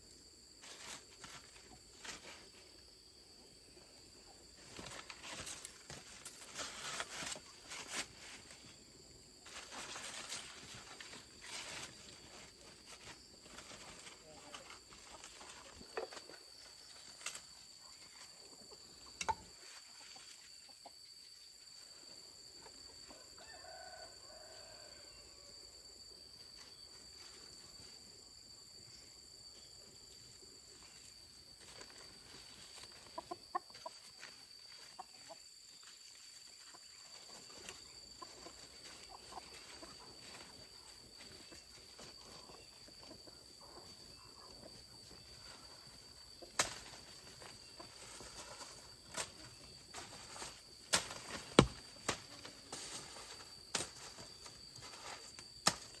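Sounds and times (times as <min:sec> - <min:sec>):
chickens clucking: 0:09.5 - 0:21.2, 0:31.7 - 0:52.6.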